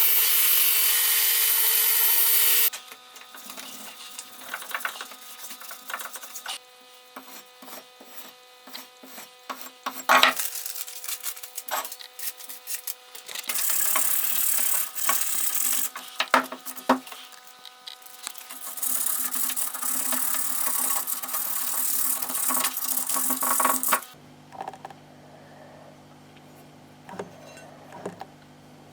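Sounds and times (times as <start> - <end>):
wood scraping and rasping: 16.7 - 24.2
faint steady hum: 24.1 - 28.9.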